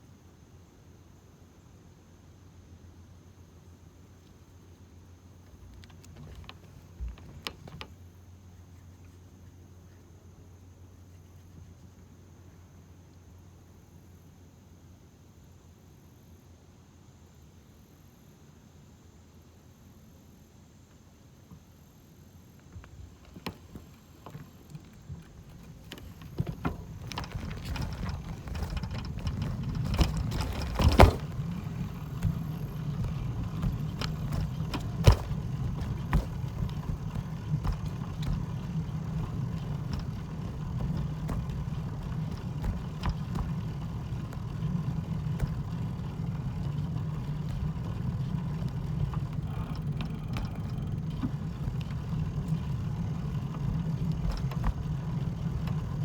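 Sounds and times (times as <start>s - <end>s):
low steady rumble: 22.9s - 56.0s.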